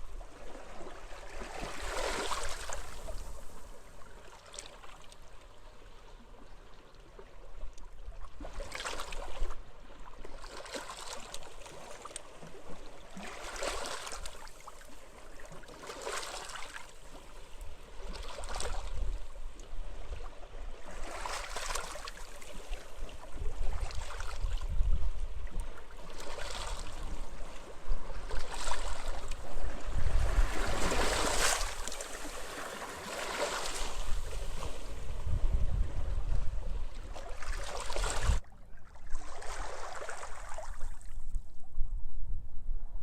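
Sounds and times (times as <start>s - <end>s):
small waves washing onto beach: 0.0s - 7.7s, 8.4s - 38.4s
wind rumbling on microphone: 18.0s - 21.3s, 22.3s - 32.4s, 33.8s - 43.0s.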